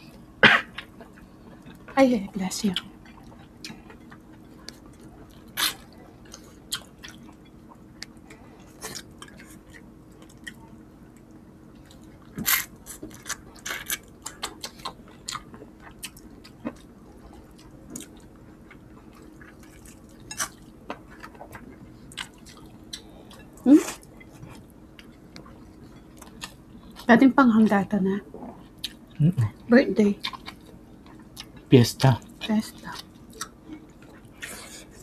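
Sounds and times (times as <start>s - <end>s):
wet chewing: 11.8s - 27.1s, 30.2s - 31.7s.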